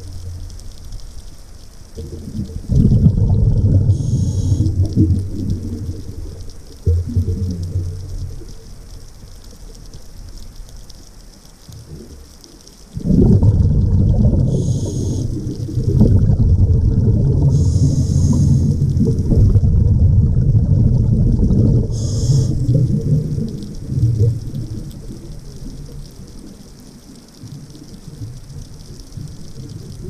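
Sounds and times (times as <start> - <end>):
exhaled bubbles rumbling underwater: 0.0 - 30.0
regulator hissing inhalations: 3.9 - 4.8, 14.4 - 15.6, 17.5 - 19.0, 21.9 - 23.0.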